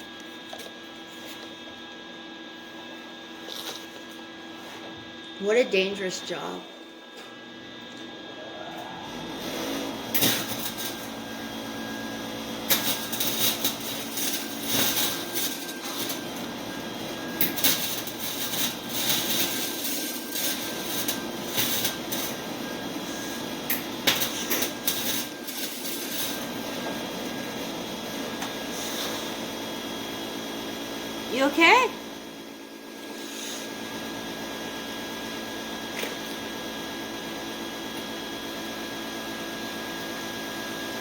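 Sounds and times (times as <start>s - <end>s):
welding arc crackling: 9.3s - 29.5s.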